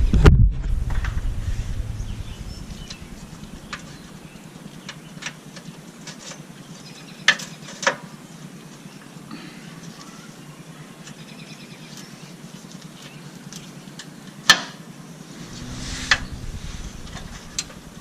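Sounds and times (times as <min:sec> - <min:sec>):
low rumble: 0:00.0 - 0:04.4, 0:15.3 - 0:18.0.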